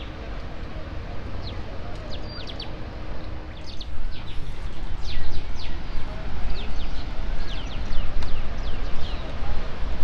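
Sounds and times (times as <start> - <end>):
small birds chirping: 1.4 - 2.8.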